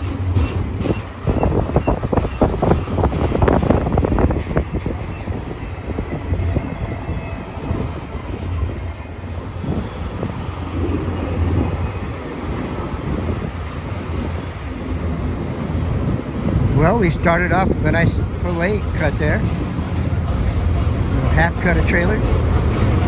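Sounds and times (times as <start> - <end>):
knocks of train wheels: 0.0 - 10.8
freight train cars rolling past: 0.0 - 23.0.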